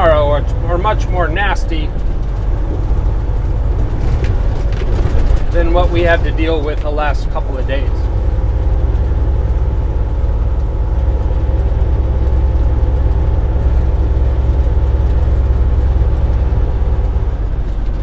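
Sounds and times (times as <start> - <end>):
truck engine and road drone: 0.0 - 18.0.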